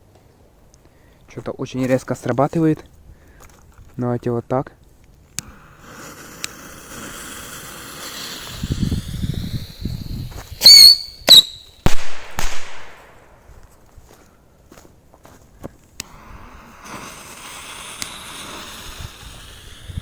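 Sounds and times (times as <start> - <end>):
firework whistle rising: 5.5 - 11.8
firework bangs: 5.6 - 13.4.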